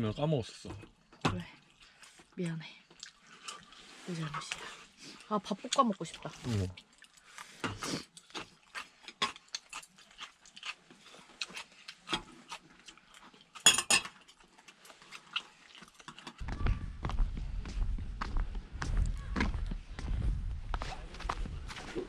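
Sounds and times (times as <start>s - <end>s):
utensils clinking on dishes: 13.6s - 14.2s
dishes clattering: 13.7s - 14.2s
low rumbling noise: 16.4s - 22.0s.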